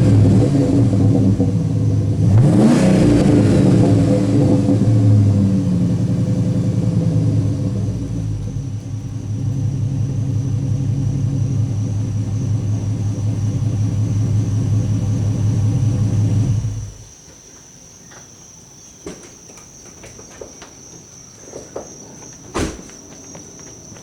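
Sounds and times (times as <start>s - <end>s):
car engine idling rumble: 0.0s - 17.2s.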